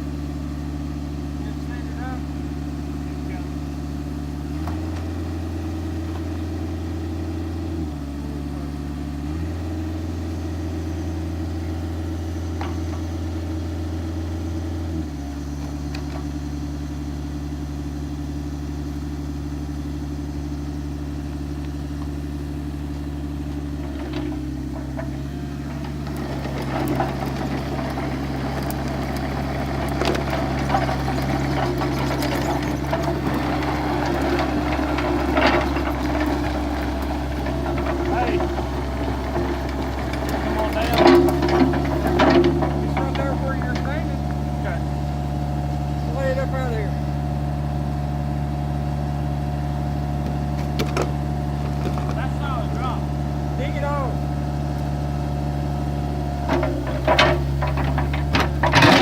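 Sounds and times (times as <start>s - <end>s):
excavator diesel engine running: 0.0s - 59.0s
scraping and clattering: 23.8s - 44.8s, 56.4s - 59.0s.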